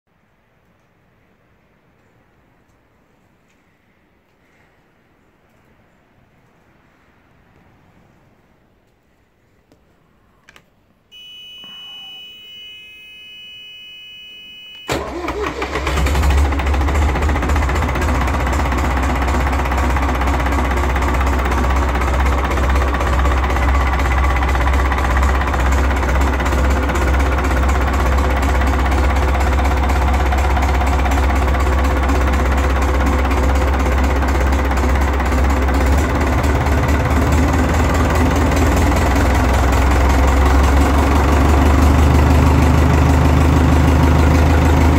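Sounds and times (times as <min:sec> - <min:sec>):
high electric tone: 0:11.1 - 0:15.6
diesel engine starting and idling: 0:11.2 - 0:44.9.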